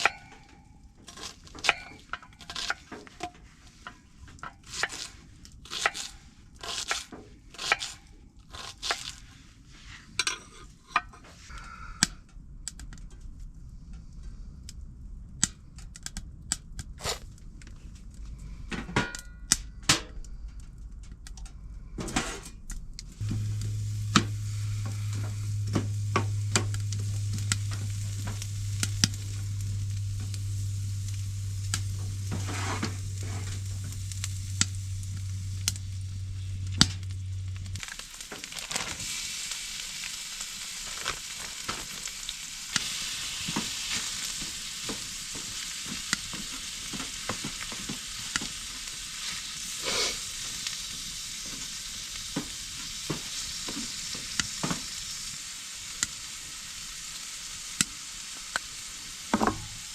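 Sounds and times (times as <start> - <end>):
low steady hum: 0.0 - 57.6, 58.2 - 59.9
food sizzling in a pan: 23.2 - 59.9.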